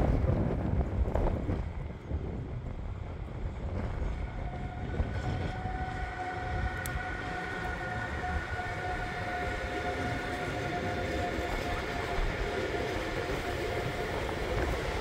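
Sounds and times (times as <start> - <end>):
locomotive high whine: 0.0 - 15.0
wheels rumbling on rails: 0.0 - 15.0
wind buffeting microphone: 0.0 - 15.0.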